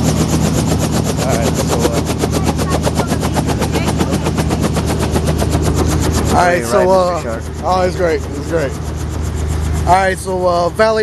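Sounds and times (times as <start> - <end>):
helicopter rotor chopping: 0.0 - 11.0
low engine drone: 0.0 - 11.0.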